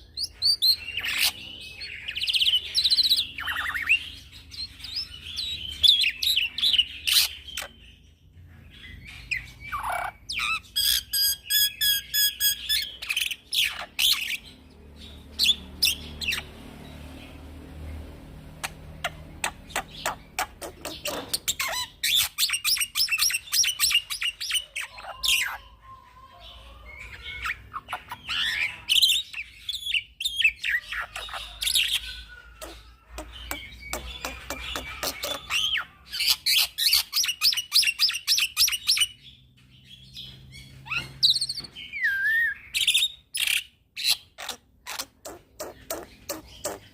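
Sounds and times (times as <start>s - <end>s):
bird singing chirps and trills: 0.0s - 46.9s
harsh squawks of bird: 30.9s - 36.9s.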